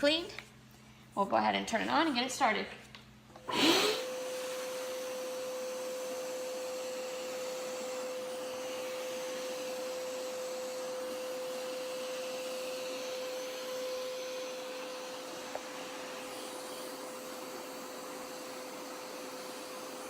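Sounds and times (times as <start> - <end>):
carpet washer motor drone: 3.4 - 20.0.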